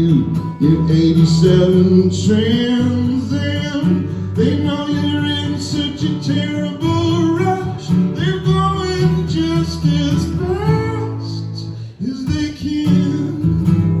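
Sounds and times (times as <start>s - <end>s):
guitar: 0.0s - 14.0s
person singing: 0.0s - 14.0s.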